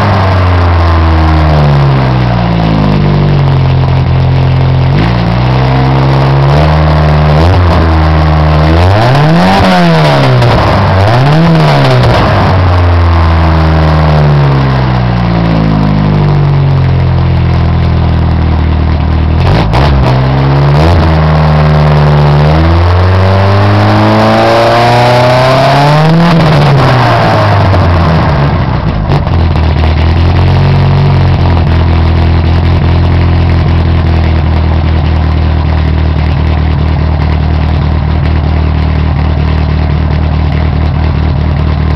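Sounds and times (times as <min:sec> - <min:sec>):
car engine revving and idling: 0:00.0 - 0:41.9.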